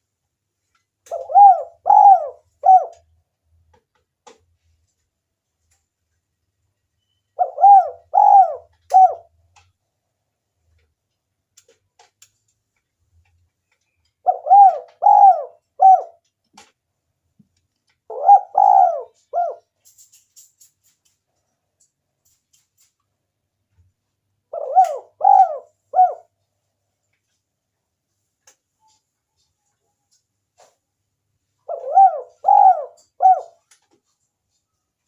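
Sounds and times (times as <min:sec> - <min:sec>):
dove cooing: 0:01.1 - 0:03.1, 0:07.4 - 0:09.3, 0:14.2 - 0:16.2, 0:18.1 - 0:19.7, 0:24.5 - 0:26.3, 0:31.6 - 0:33.6.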